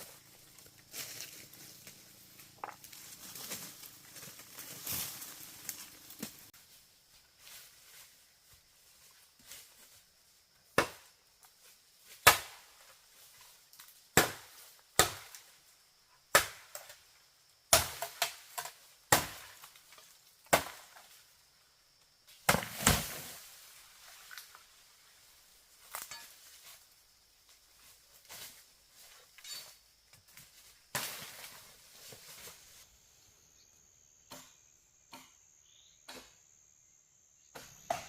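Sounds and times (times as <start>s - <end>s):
chopping strikes: 34.3s - 35.4s, 37.5s - 38.0s.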